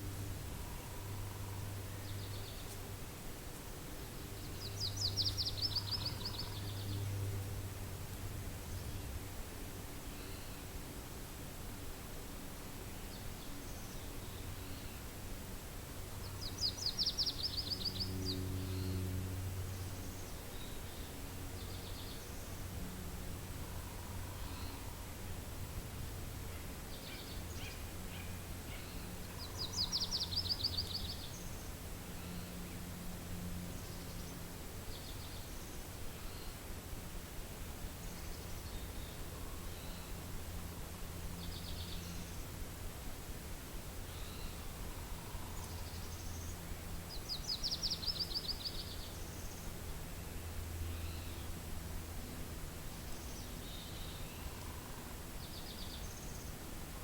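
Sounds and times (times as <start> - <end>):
low wind rumble: 0.0 - 57.0
songbird chirping and singing: 16.2 - 19.2, 26.9 - 32.6.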